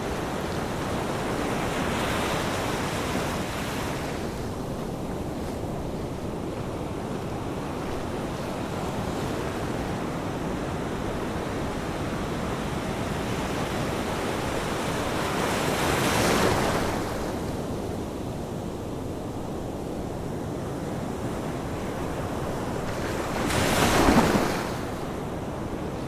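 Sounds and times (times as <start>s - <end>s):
ocean waves washing ashore: 0.0s - 26.0s.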